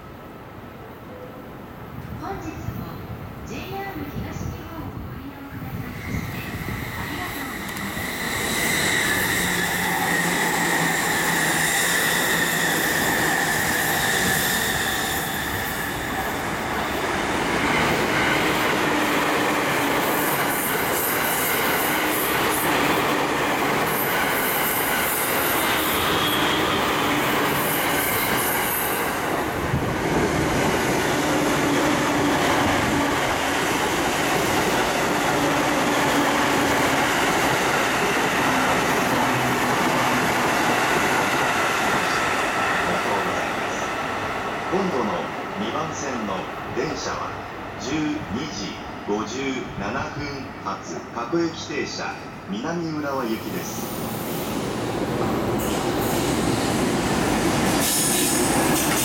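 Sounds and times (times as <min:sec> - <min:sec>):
trains passing at speed: 0:00.0 - 0:59.0
wheels squealing on curve: 0:06.2 - 0:16.3.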